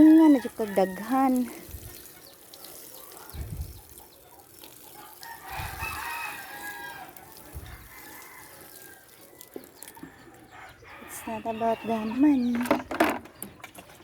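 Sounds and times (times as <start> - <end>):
rooster crowing: 0.0 - 1.3, 5.0 - 12.3.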